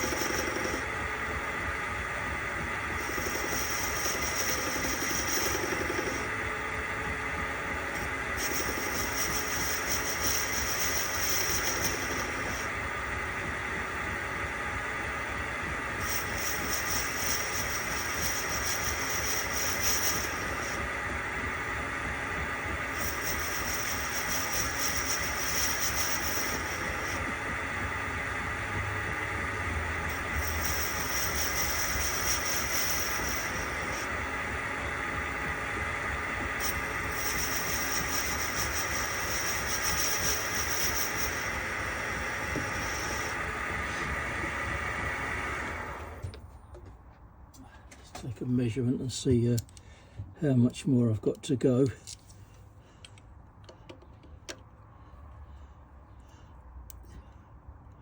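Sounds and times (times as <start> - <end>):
high hiss: 0.0 - 46.2
metal lathe running: 0.0 - 46.2
high-pitched metal cutting: 22.9 - 27.4, 28.8 - 34.2, 36.6 - 43.4.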